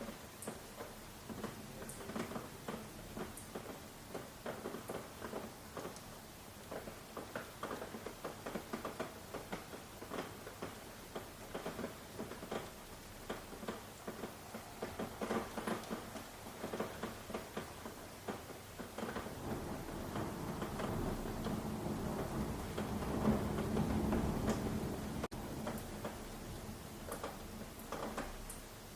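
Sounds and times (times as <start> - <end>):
rain pattering on hard surface: 0.0 - 28.9
low rumble: 19.3 - 25.4.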